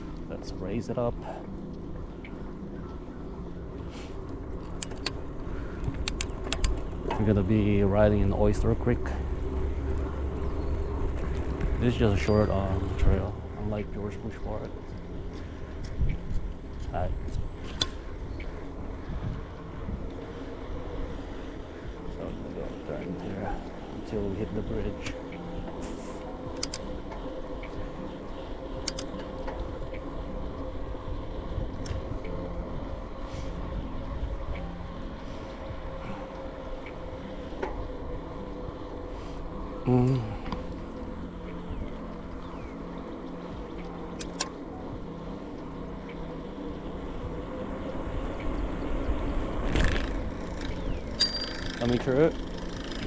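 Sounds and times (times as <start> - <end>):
bicycle tyre and wind rumble: 0.0 - 53.0
faint constant hum: 0.0 - 53.0
bike rattling clicks: 4.6 - 5.2, 5.8 - 7.3, 26.5 - 27.8, 28.8 - 29.7, 44.1 - 44.6, 49.6 - 53.0.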